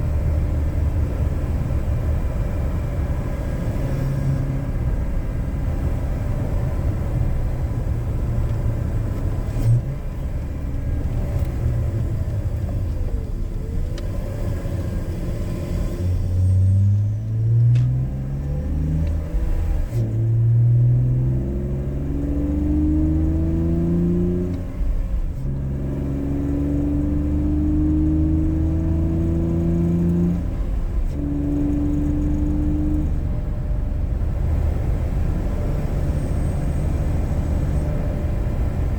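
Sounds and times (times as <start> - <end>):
car engine accelerating through gears: 0.0 - 38.9.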